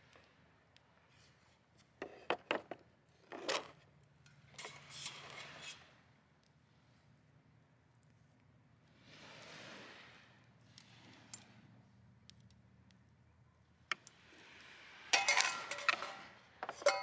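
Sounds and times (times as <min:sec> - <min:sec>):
camp gear knocks and clinks: 0:15.2 - 0:17.0.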